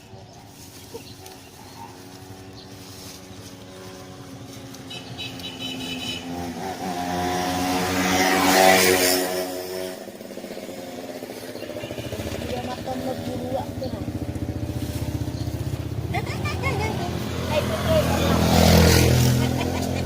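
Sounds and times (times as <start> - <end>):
motorcycle engine passing: 0.9 - 20.0.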